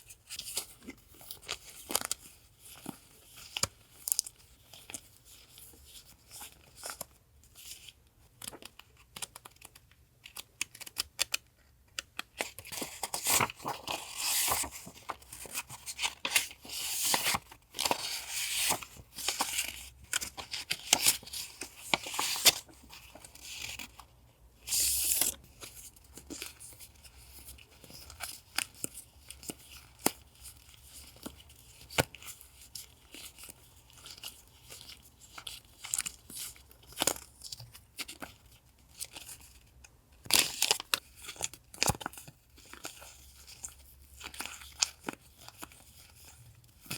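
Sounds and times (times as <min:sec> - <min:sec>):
paper rustling and tearing: 0:12.6 - 0:23.8.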